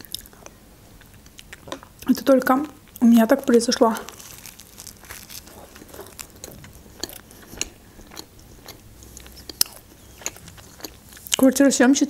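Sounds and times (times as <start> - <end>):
chewing crunches: 2.8 - 11.6.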